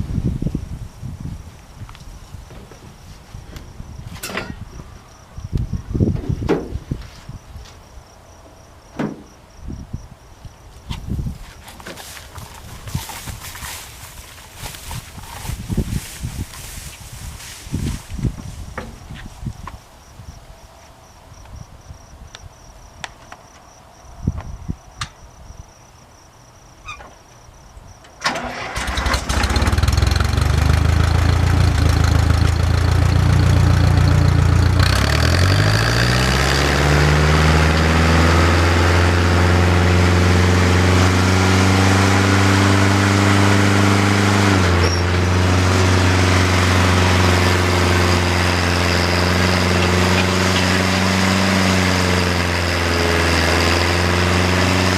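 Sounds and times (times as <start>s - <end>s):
engine starting and running: 28.0s - 54.9s.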